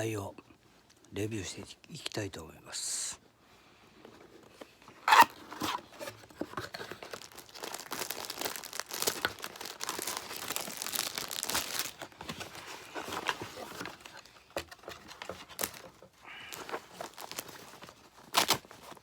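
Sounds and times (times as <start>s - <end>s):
packaging crinkling and tearing: 5.0s - 19.0s.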